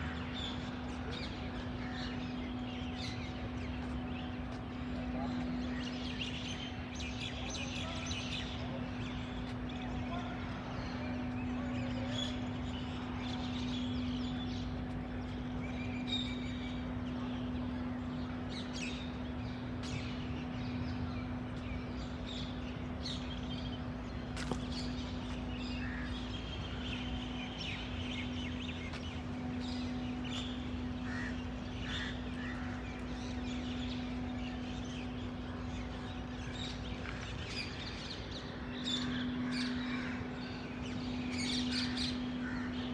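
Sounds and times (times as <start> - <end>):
low machine hum: 0.0 - 42.9
birds chirping and calling: 24.4 - 42.9.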